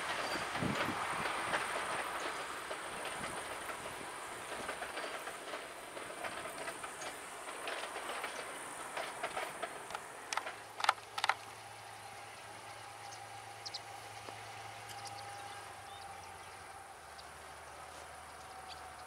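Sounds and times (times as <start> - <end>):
distant train running: 0.0 - 19.0
wheels ticking over rail joints: 0.0 - 19.0
sharp loud clicks: 9.8 - 11.5.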